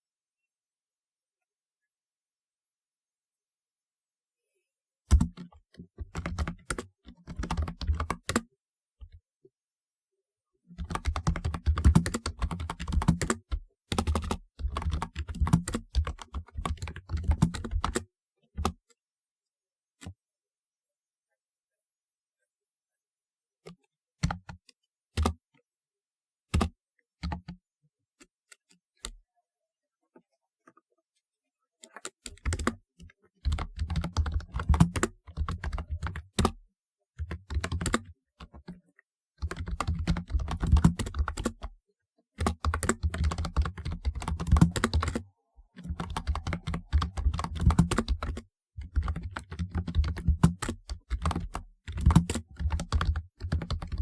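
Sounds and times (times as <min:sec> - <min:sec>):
typing on computer keyboard: 0:05.1 - 0:08.5, 0:10.8 - 0:18.0, 0:31.9 - 0:36.6, 0:37.2 - 0:38.8, 0:39.4 - 0:41.7, 0:42.4 - 0:54.0.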